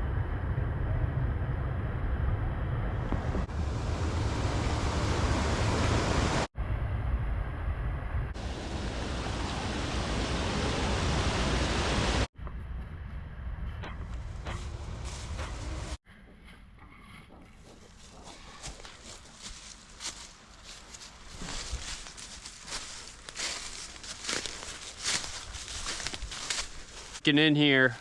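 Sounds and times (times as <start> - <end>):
stream and waterfall rushing: 3.6 - 6.5, 8.4 - 12.3.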